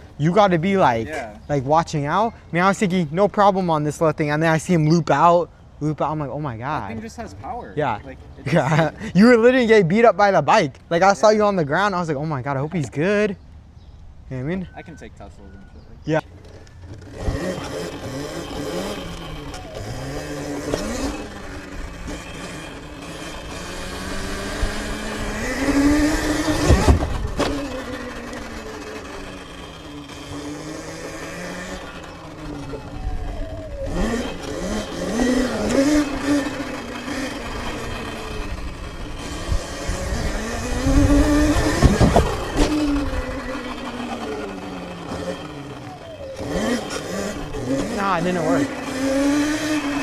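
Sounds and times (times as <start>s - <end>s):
wind: 0.0s - 50.0s
electric dirt bike motor whining: 16.3s - 50.0s
tyre rumble: 24.2s - 28.6s, 39.9s - 43.8s.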